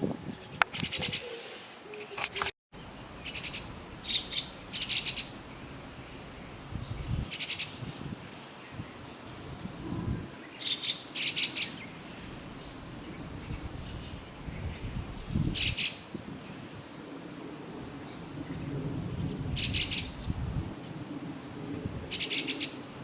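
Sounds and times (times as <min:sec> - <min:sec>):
starlings chattering: 0:00.4 - 0:17.0.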